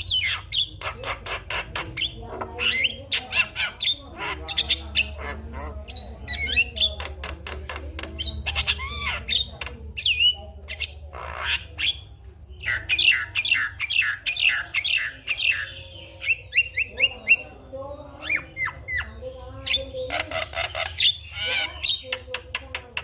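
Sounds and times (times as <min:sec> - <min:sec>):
bird singing squawks and whistles: 0:05.8 - 0:17.6.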